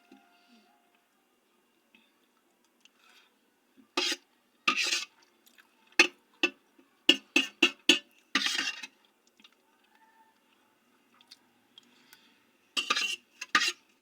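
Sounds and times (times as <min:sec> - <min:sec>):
utensil scraping a dish: 0:04.0 - 0:05.1, 0:07.1 - 0:09.0, 0:12.8 - 0:14.0.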